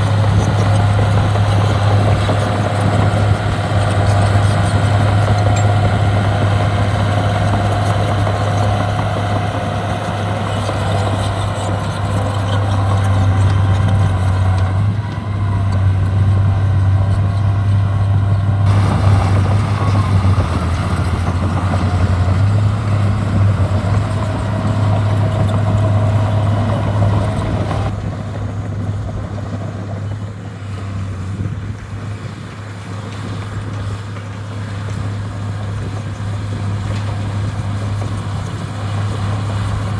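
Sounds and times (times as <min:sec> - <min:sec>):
heavy diesel machinery drone: 0:00.0 - 0:39.9
high whine: 0:03.2 - 0:29.4.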